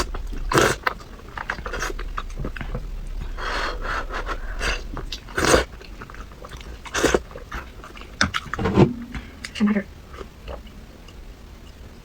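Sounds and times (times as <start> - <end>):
person chewing food: 4.3 - 8.6.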